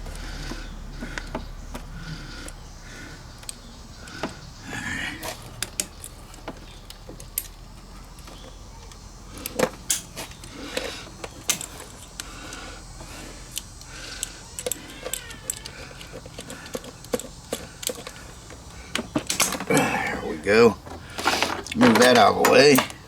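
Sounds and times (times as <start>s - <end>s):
small metallic clicks: 5.2s - 19.7s.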